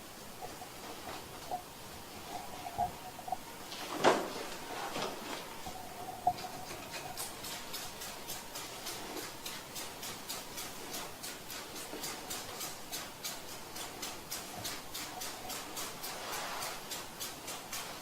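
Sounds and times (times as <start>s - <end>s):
spray bottle hissing sprays: 5.6s - 18.0s.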